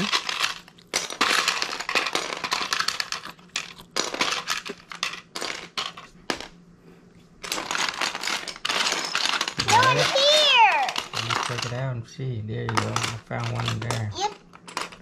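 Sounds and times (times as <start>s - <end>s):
plastic bricks clattering: 0.0s - 6.5s, 7.4s - 11.9s, 12.6s - 15.0s.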